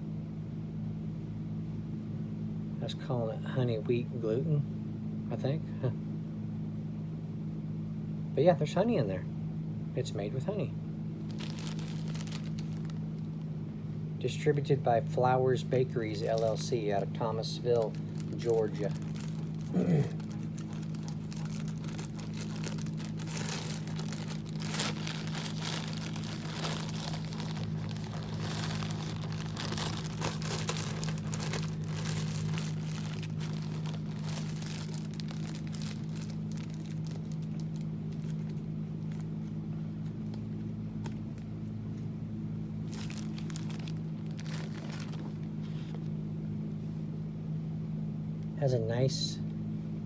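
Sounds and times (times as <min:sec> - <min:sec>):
steady low hum: 0:00.0 - 0:50.0
plastic bag crinkling: 0:11.2 - 0:13.5, 0:16.0 - 0:41.4, 0:42.8 - 0:46.1.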